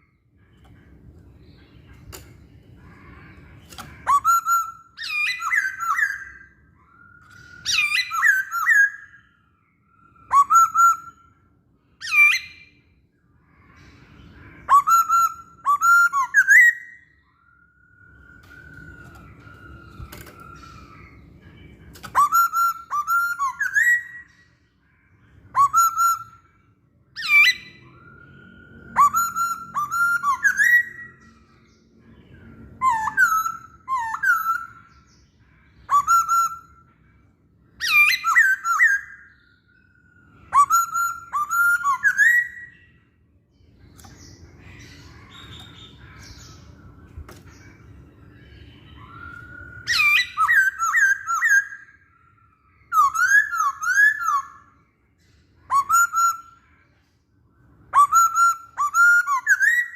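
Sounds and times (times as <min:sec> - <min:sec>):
bird singing whistled phrases: 0:03.2 - 0:12.8, 0:14.3 - 0:24.6, 0:25.4 - 0:31.7, 0:32.3 - 0:37.1, 0:37.7 - 0:43.0, 0:48.1 - 0:54.8, 0:55.6 - 0:56.9, 0:57.8 - 0:59.9.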